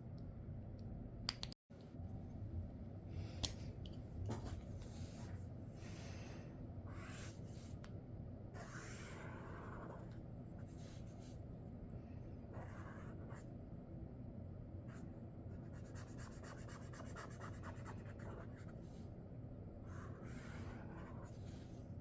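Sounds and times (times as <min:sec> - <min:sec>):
marker scratching on paper: 0:06.9 - 0:07.8, 0:08.6 - 0:11.3, 0:12.5 - 0:13.4, 0:15.6 - 0:19.0, 0:19.9 - 0:21.8.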